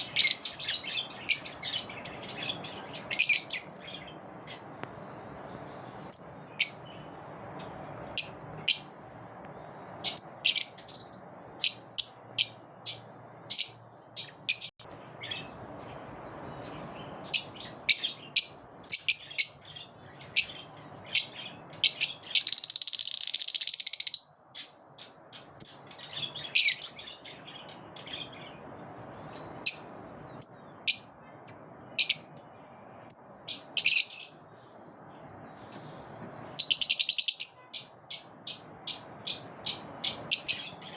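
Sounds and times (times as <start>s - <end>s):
lovebirds chattering: 0.0s - 4.9s, 6.0s - 7.4s, 8.1s - 9.0s, 9.7s - 16.0s, 16.8s - 32.4s, 33.0s - 34.5s, 36.6s - 40.9s
lovebirds chirping: 0.0s - 40.9s
low background noise: 0.0s - 40.9s.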